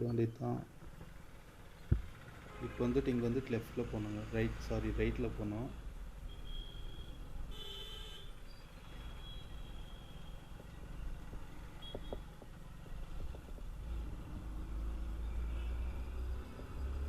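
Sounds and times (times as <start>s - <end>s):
vehicle horn beep: 6.3s - 8.4s.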